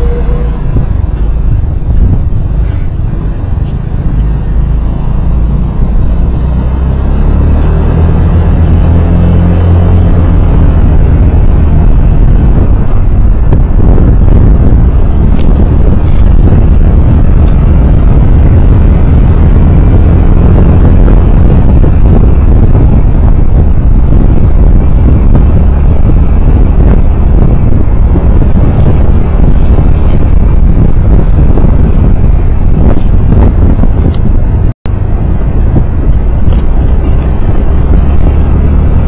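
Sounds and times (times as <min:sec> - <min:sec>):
vehicle rumbling on the road: 0:00.0 - 0:39.0
wind noise on microphone: 0:00.0 - 0:39.0.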